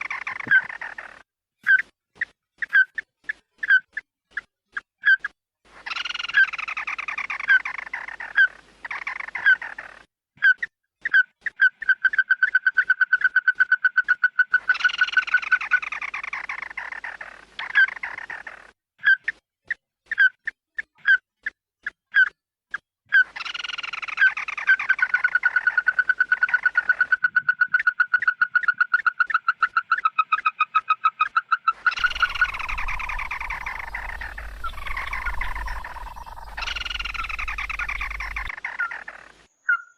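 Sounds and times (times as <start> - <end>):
bird calling: 31.9 - 39.9.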